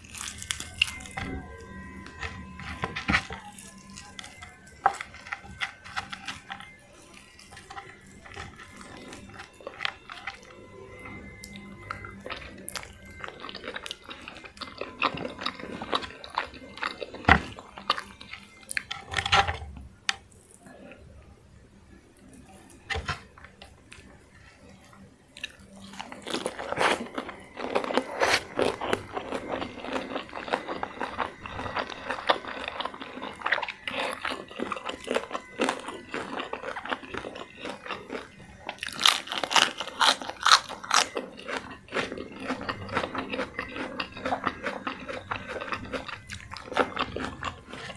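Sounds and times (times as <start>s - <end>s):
wet chewing: 0.0s - 21.3s, 22.2s - 47.9s
crunchy bites: 22.2s - 47.9s.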